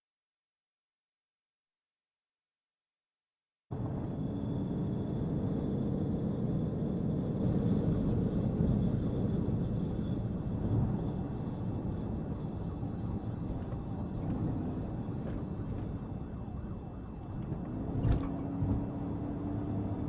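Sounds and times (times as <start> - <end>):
low vehicle rumble: 3.7 - 20.0.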